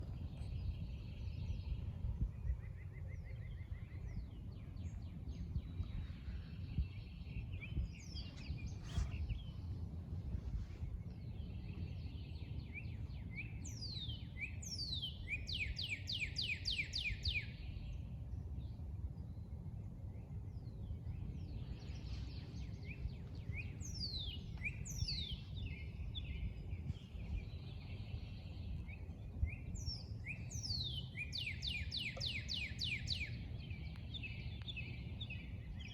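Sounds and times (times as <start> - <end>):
songbirds singing: 0.0 - 35.9
steady low rumble: 0.0 - 35.9.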